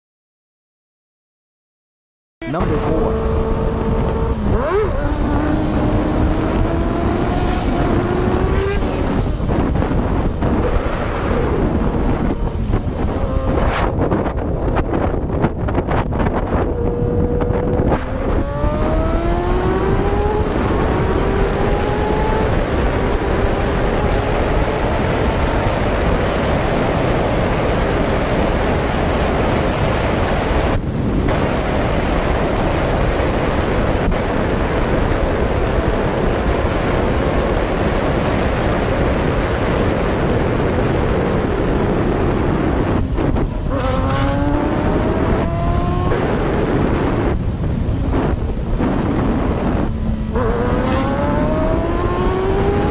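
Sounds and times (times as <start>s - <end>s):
wind and road noise: 2.4s - 52.9s
engine revving up: 2.5s - 14.0s, 16.6s - 26.2s, 42.6s - 47.4s, 48.2s - 52.9s.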